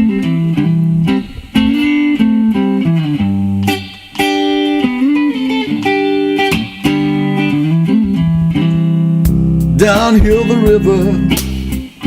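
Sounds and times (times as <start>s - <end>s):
guitar picking a melody: 0.0s - 12.0s
low sustained bass notes: 7.0s - 11.9s.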